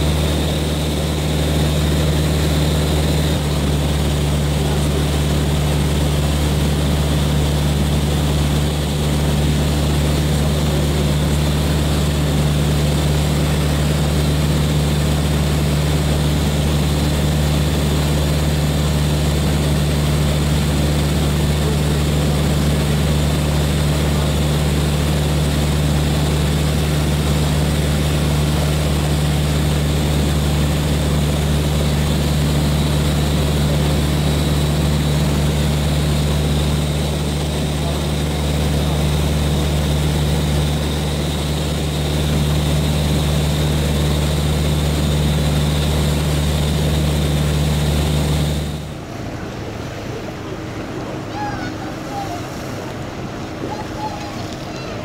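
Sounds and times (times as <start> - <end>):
airplane engine and propeller drone: 0.0 - 55.0.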